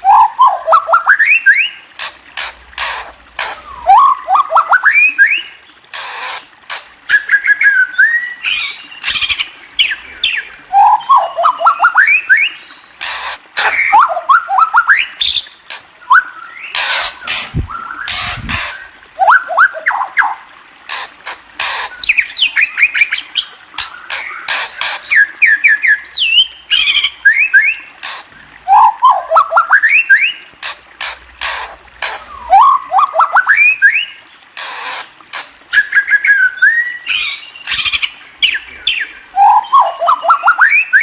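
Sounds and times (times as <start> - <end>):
songbird singing: 7.1 - 13.0, 13.6 - 20.4, 35.7 - 41.0.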